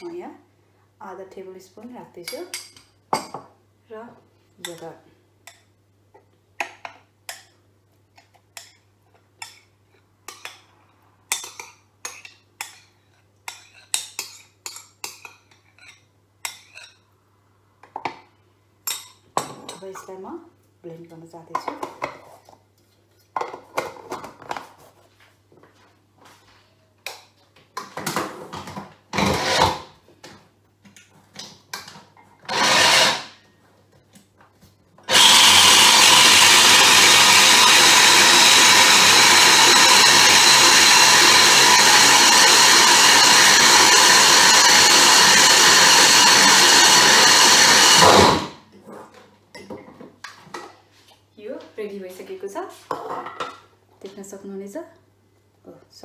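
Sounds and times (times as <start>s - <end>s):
mixer grinder blending: 29.2s - 29.9s, 32.5s - 33.4s, 35.1s - 48.6s.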